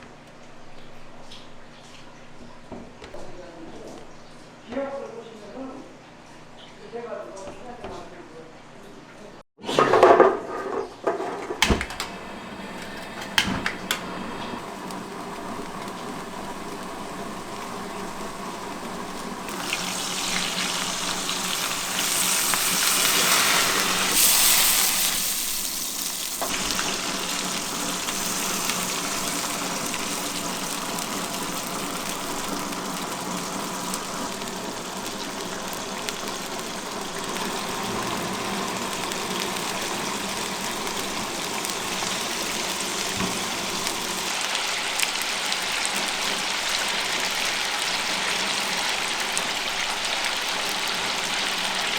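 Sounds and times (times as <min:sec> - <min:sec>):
kitchen utensils clattering: 0:09.6 - 0:14.6
fish sizzling in hot oil: 0:14.1 - 0:51.9.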